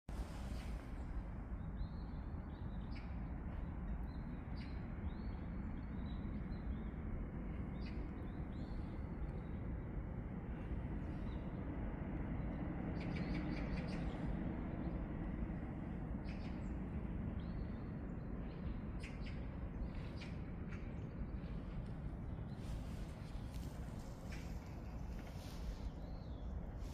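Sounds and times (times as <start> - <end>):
low background rumble: 0.1 - 26.9
small birds chirping: 0.2 - 26.9.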